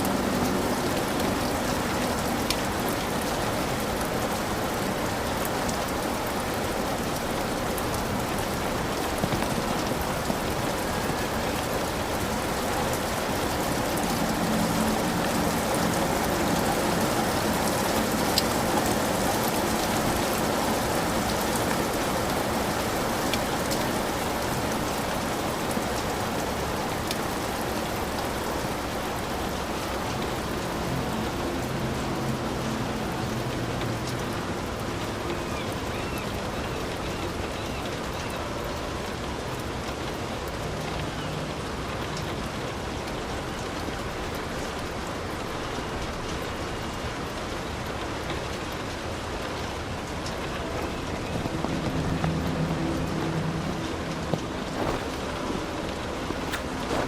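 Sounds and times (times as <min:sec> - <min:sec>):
heavy rain on a hut roof: 0:00.0 - 0:57.0.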